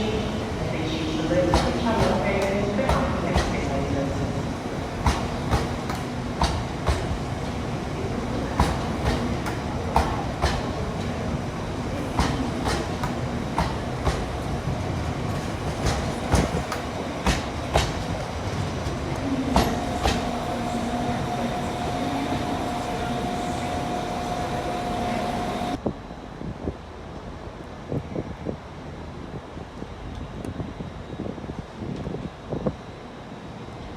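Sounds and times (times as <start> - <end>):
train running on track: 0.0 - 33.9
wheels clacking over rail joints: 12.1 - 25.8.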